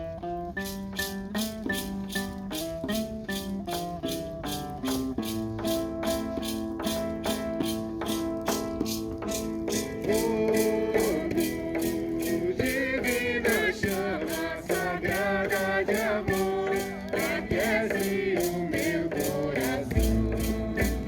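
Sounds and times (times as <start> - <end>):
guitar: 0.0 - 21.0
maracas shaken: 0.5 - 21.0
voices singing a hymn: 9.3 - 21.0
deep bass: 20.0 - 21.0.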